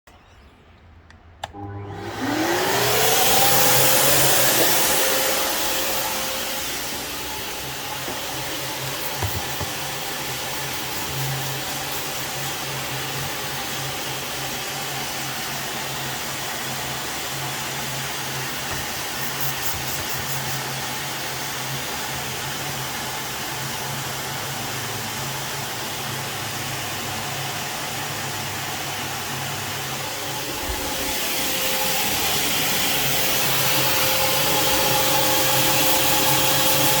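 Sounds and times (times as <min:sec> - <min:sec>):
machine whining and humming: 0:00.1 - 0:21.8, 0:29.4 - 0:37.0.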